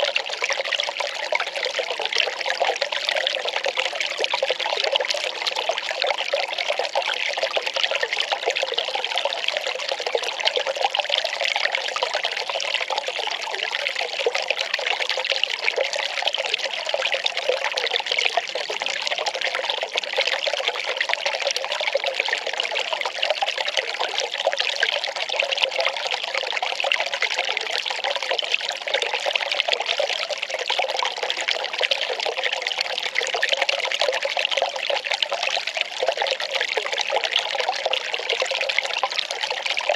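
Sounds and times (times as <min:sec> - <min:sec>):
water pouring in a trickle: 0:00.0 - 0:39.9.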